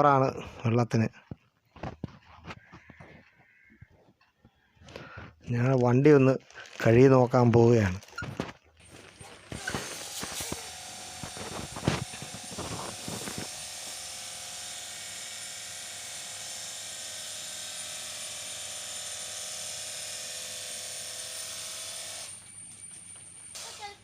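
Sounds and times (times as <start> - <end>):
pump motor whining: 8.8 - 24.0.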